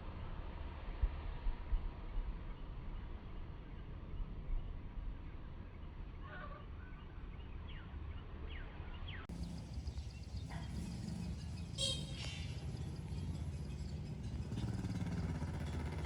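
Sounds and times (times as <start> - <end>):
bird chirps: 9.3 - 16.0.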